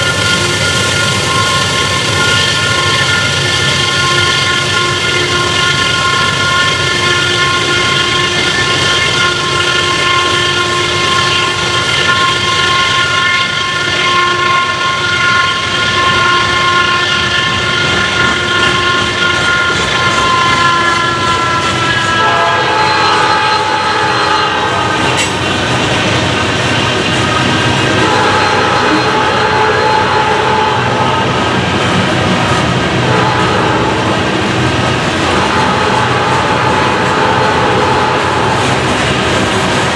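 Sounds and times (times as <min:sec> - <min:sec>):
locomotive whine: 0:00.0 - 0:39.9
train rumble: 0:00.0 - 0:39.9.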